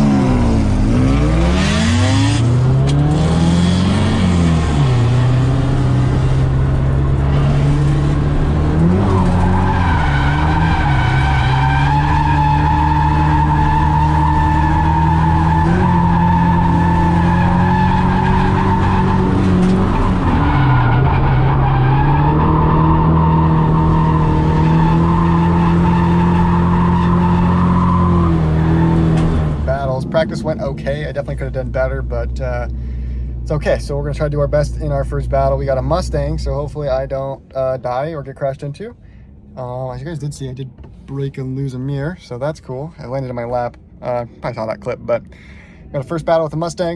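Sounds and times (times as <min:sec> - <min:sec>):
car engine at high revs: 0:00.0 - 0:33.4
tyres skidding: 0:00.0 - 0:46.9.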